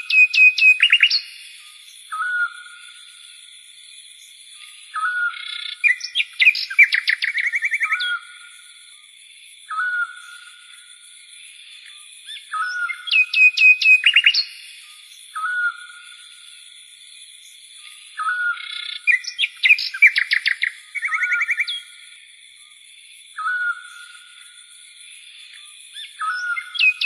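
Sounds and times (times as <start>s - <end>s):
bird rapid chirps and trills: 0.0s - 1.4s, 5.0s - 8.2s, 12.2s - 14.6s, 18.2s - 21.9s, 25.9s - 27.0s.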